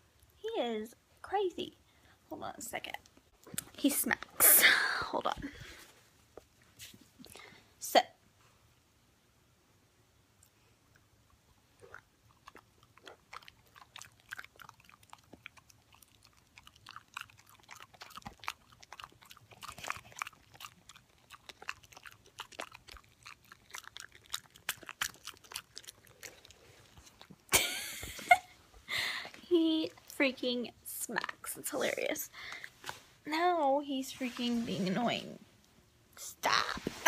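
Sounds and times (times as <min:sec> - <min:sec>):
puppy smacking mouth: 0:11.9 - 0:27.5.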